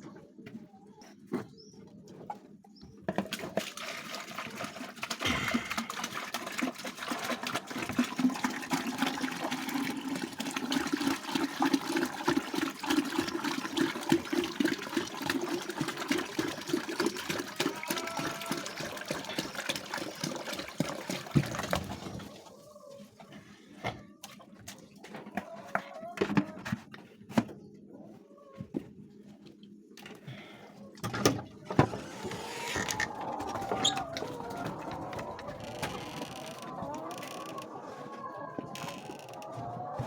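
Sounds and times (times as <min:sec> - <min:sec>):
water running and splashing: 0:03.4 - 0:22.6, 0:32.0 - 0:38.0.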